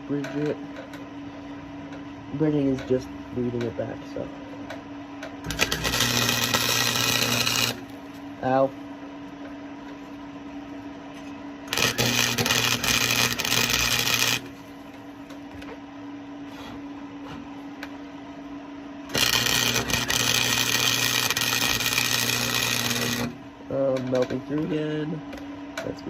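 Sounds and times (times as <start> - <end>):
steady low hum: 0.0 - 26.0
welder arc crackling and sizzling: 5.4 - 8.8, 11.6 - 15.4, 19.1 - 25.2.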